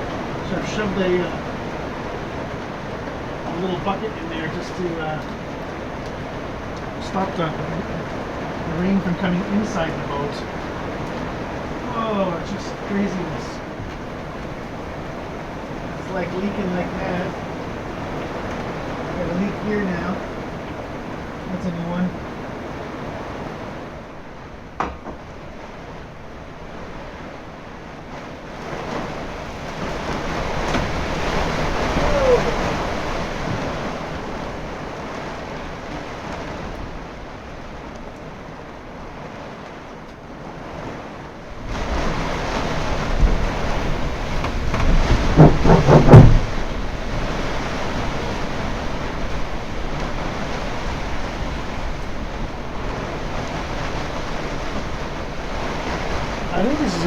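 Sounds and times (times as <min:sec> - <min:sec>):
wind noise on microphone: 0:00.0 - 0:39.6, 0:40.4 - 0:57.0
heavy rain: 0:00.0 - 0:57.0
storm wind: 0:00.0 - 0:57.0.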